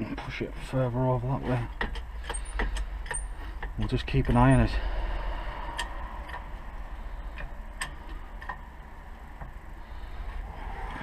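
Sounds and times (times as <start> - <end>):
low steady hum: 0.0 - 11.0
sharp metallic clicks: 1.8 - 4.7, 5.7 - 6.5.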